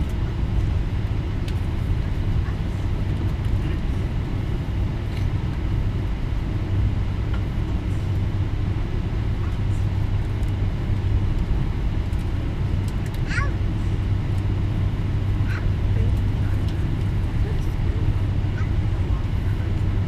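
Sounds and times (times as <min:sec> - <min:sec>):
airplane engine drone: 0:00.0 - 0:20.0.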